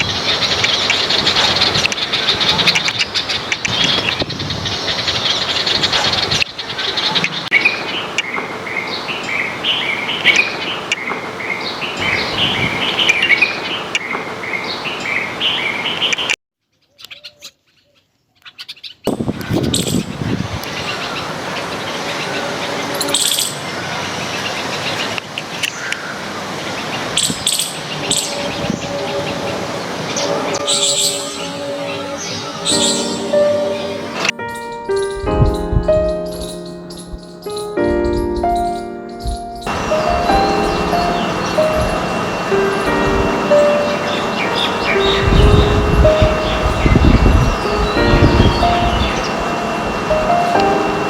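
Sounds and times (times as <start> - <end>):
songbirds chirping: 0.0 - 51.0
steady background noise: 20.0 - 51.0.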